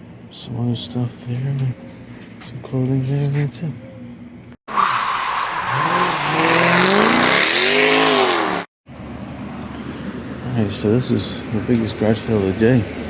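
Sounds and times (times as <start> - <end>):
road noise rushing: 4.7 - 13.0
car engine accelerating: 5.0 - 8.7.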